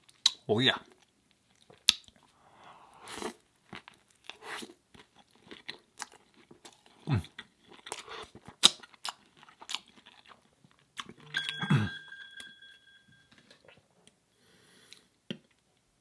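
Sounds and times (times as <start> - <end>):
crunchy chewing: 3.2 - 11.3
short steady tone: 11.2 - 13.3.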